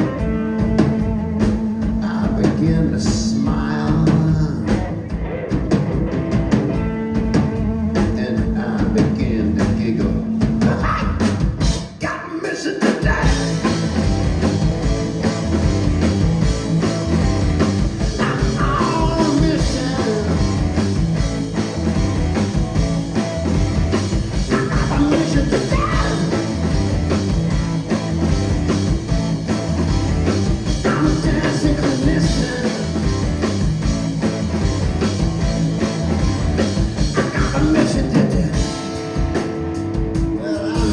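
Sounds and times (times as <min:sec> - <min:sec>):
rock band playing live: 0:00.0 - 0:40.9
person singing: 0:01.8 - 0:04.9, 0:18.2 - 0:20.8, 0:24.5 - 0:26.6, 0:30.8 - 0:33.1, 0:37.2 - 0:39.0, 0:40.3 - 0:40.9
sliding guitar melodic lines: 0:04.8 - 0:08.0.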